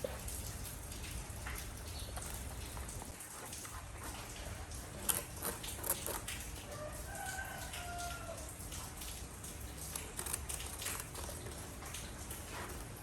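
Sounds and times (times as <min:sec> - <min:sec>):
rooster crowing: 0:06.7 - 0:08.5.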